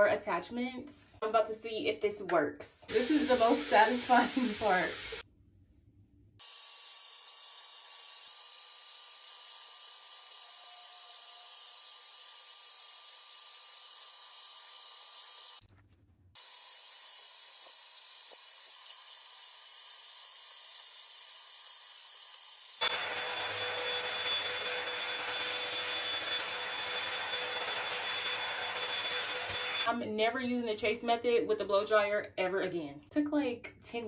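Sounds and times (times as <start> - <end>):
blow dryer brush running: 2.9 - 5.2, 22.8 - 29.9.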